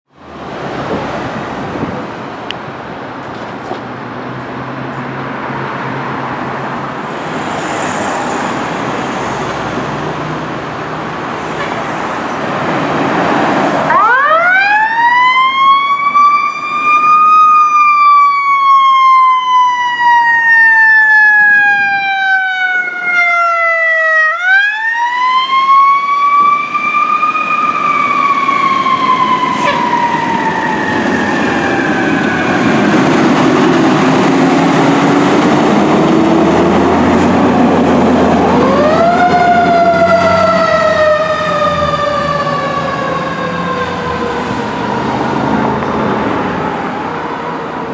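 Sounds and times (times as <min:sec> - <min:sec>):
fire siren winding: 0:13.9 - 0:33.0
diesel engine rumble: 0:26.6 - 0:47.7.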